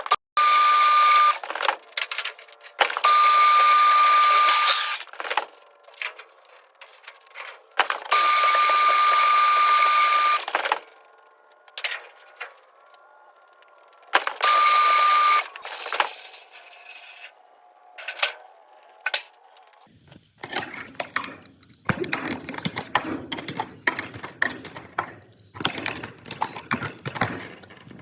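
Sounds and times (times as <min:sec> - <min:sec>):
power tool whining: 0:00.4 - 0:19.9.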